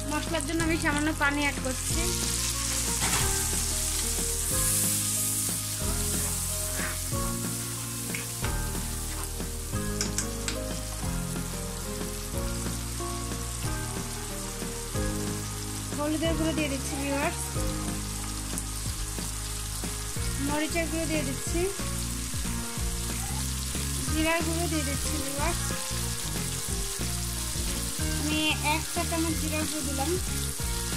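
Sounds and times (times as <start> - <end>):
onions sizzling in hot oil: 0.0 - 30.9
stirring clicks: 9.9 - 10.6.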